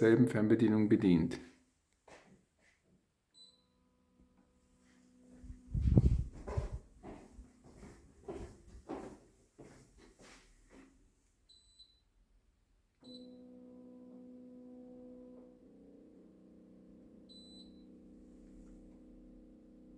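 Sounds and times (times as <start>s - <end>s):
air conditioner beeping: 17.3s - 18.1s.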